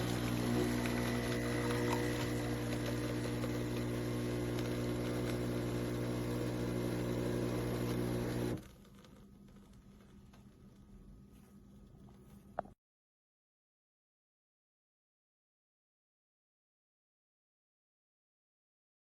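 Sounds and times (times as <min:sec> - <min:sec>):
espresso machine pump buzzing: 0:00.0 - 0:08.7.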